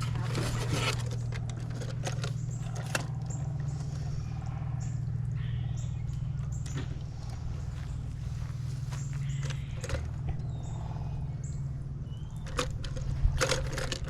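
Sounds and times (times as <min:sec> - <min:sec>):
faint squeaks and rustles: 0:00.0 - 0:11.0
steady low hum: 0:00.0 - 0:14.0.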